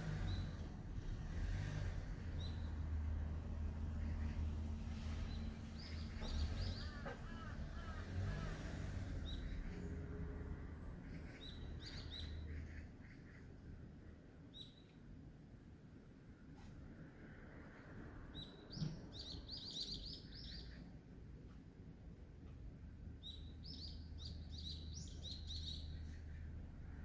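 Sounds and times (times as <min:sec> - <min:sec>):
lower curving bird calls: 0:03.9 - 0:10.1.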